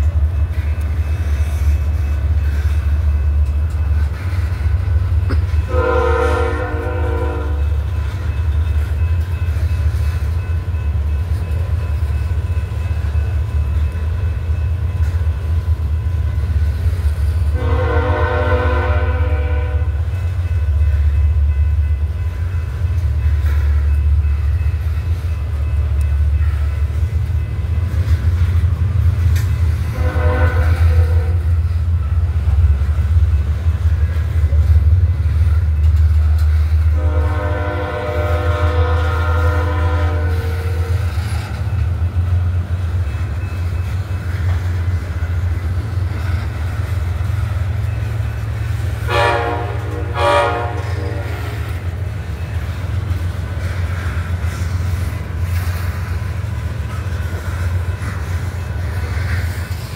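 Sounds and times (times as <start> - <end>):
freight train rumbling: 0.0 - 59.9
train horn blasts: 5.5 - 7.8, 17.4 - 20.1, 29.8 - 31.6, 36.8 - 41.1, 49.0 - 51.9.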